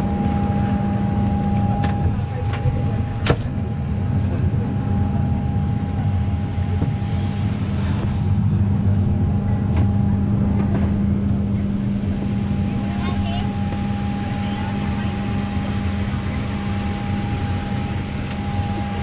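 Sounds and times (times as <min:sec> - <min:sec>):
engine drone with whine: 0:00.0 - 0:19.0.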